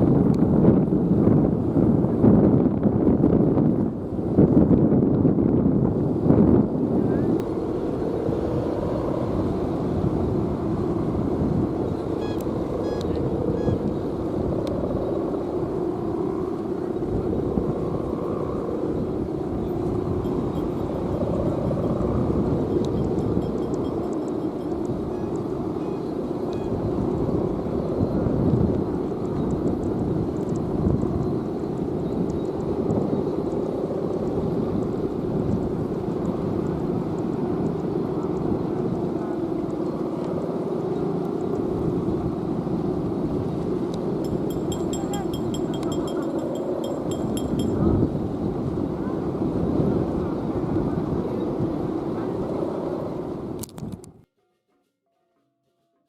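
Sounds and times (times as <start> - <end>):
wind rumbling on microphone: 0.0 - 54.3
kite hummer droning: 0.0 - 56.0.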